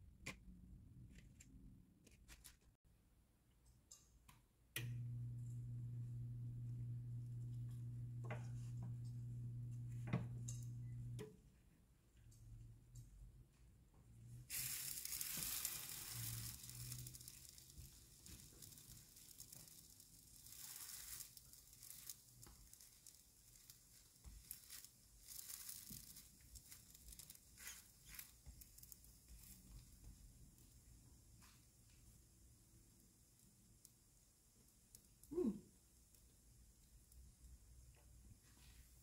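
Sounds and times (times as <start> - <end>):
wrap sizzling in frying pan: 14.4 - 35.2.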